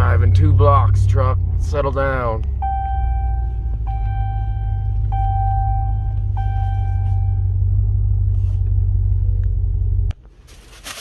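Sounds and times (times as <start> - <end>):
truck engine rumble: 0.0 - 11.0
seatbelt warning chime: 2.6 - 7.6.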